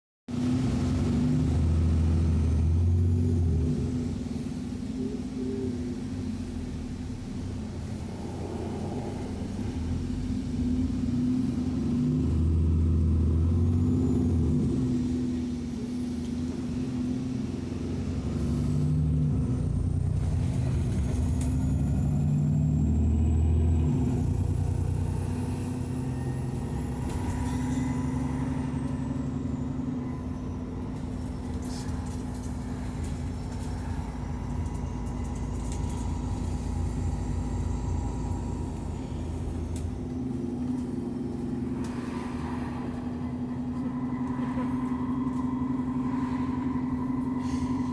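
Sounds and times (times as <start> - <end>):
bus engine accelerating: 0.3 - 47.9.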